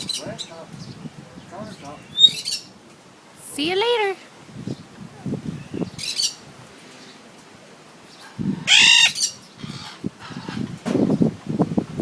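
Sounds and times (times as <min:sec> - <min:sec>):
parrot screeching: 0:02.2 - 0:02.7, 0:08.6 - 0:10.6.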